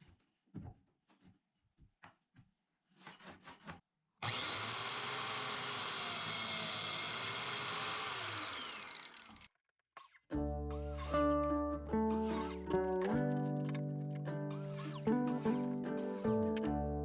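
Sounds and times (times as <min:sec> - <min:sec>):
power tool motor whining: 0:04.2 - 0:11.4, 0:12.0 - 0:13.8, 0:14.5 - 0:16.6
short scraping strokes: 0:10.0 - 0:16.6.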